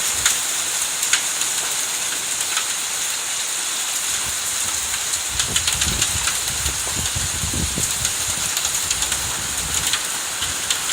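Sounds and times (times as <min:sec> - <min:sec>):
heavy rain pouring: 0:00.0 - 0:10.9.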